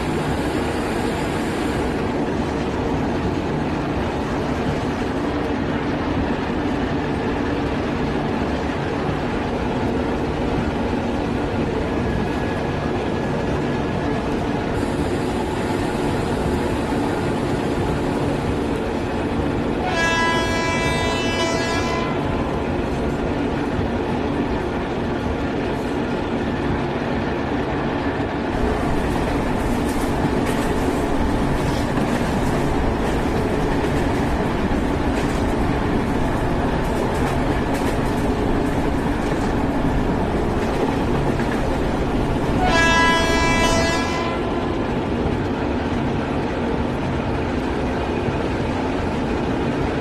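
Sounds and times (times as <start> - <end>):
train running rumble: 0.0 - 50.0
locomotive horn: 19.8 - 22.3, 42.6 - 44.7.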